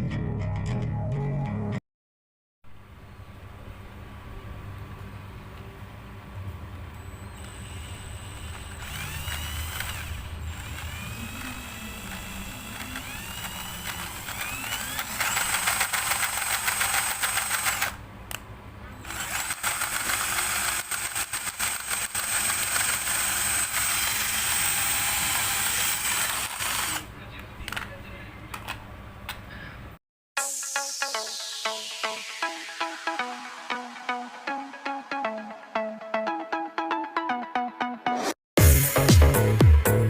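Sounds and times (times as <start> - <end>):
small power tool running: 7.0 - 18.0, 19.0 - 27.1.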